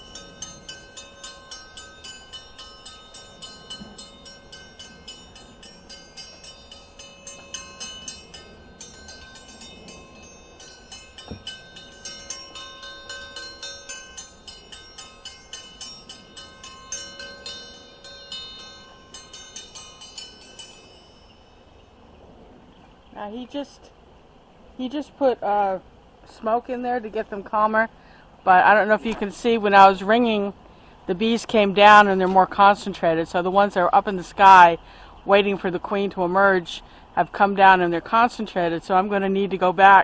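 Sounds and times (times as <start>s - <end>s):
bell rung rapidly: 0.0s - 21.7s.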